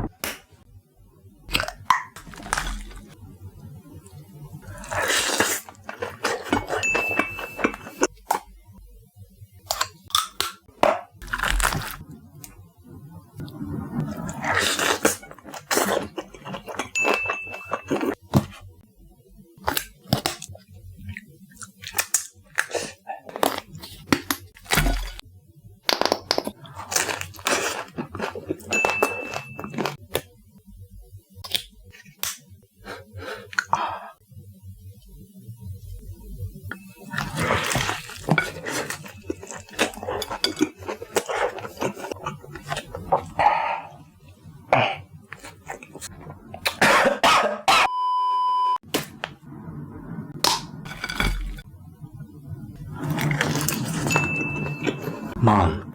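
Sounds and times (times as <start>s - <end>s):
fried chicken crunching: 1.5s - 3.2s, 4.7s - 8.5s, 9.7s - 12.6s, 14.0s - 18.7s, 21.6s - 25.2s, 25.9s - 30.2s, 36.8s - 44.0s, 44.8s - 46.9s, 50.4s - 51.6s, 52.9s - 55.3s
electronic beep: 6.8s - 7.9s, 47.9s - 48.8s.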